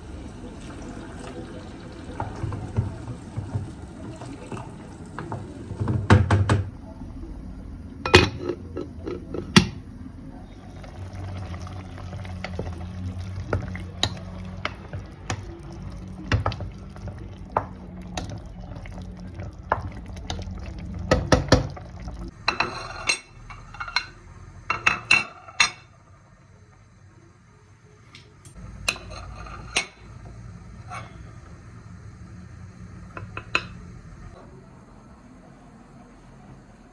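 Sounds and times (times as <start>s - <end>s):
dishes and cutlery clinking: 8.1s - 9.8s, 22.5s - 25.9s, 28.8s - 30.1s.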